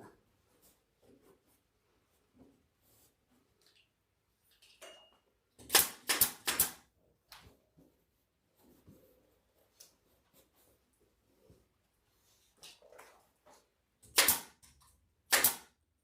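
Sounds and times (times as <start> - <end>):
staple gun firing: 5.6 - 6.8, 14.1 - 14.6, 15.3 - 15.7.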